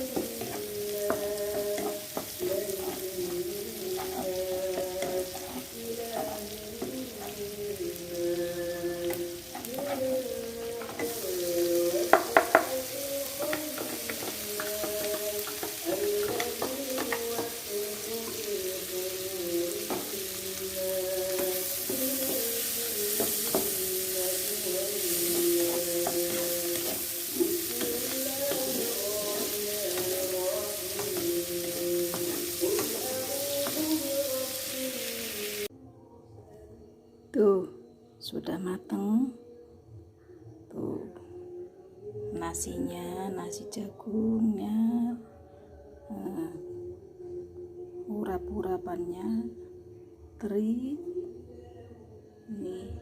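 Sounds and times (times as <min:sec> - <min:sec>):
spatula scraping a pan: 0:00.0 - 0:07.6, 0:08.5 - 0:35.3
fish sizzling in a pan: 0:00.0 - 0:35.7
soft background music: 0:00.0 - 0:53.0
spatula knocking on a pan: 0:00.1 - 0:07.4, 0:11.9 - 0:18.5, 0:19.8 - 0:20.2, 0:21.3 - 0:24.0, 0:25.0 - 0:34.0.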